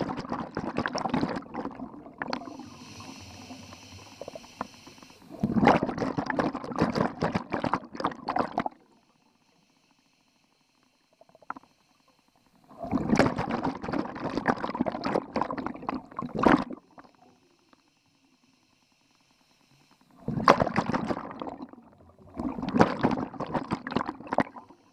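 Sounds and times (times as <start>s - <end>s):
regulator exhalation bubbling: 0.0s - 8.8s, 12.8s - 16.8s, 20.2s - 24.8s
quiet inhalation: 1.6s - 5.6s, 8.8s - 13.0s, 16.9s - 20.4s, 24.4s - 24.9s.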